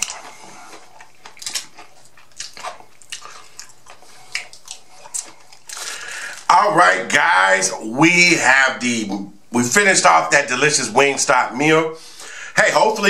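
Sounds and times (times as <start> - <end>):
chewing and lip smacking: 0.0 - 6.5.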